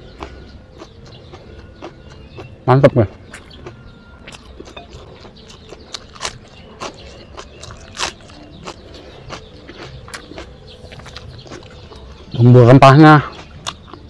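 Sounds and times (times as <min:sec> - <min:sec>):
chewing food: 0:00.0 - 0:14.0
crisp crunches of cabbage: 0:03.3 - 0:12.0.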